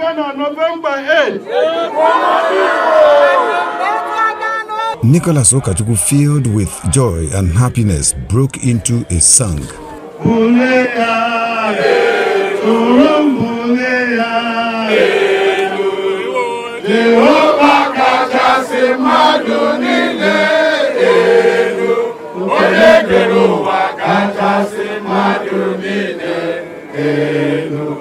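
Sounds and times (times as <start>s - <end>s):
man singing: 10.2s - 11.8s, 12.6s - 18.2s.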